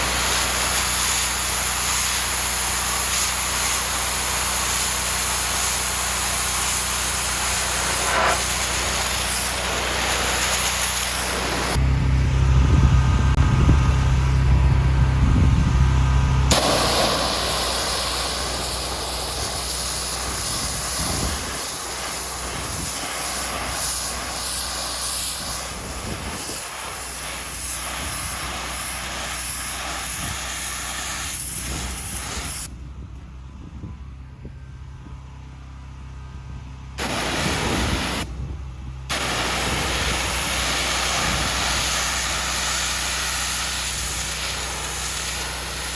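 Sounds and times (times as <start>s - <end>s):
pressure washer water jet hissing: 0.0s - 11.8s, 16.5s - 32.7s, 37.0s - 38.3s, 39.1s - 45.9s
pressure washer machine hum: 0.0s - 32.7s, 37.0s - 38.4s, 39.1s - 45.9s.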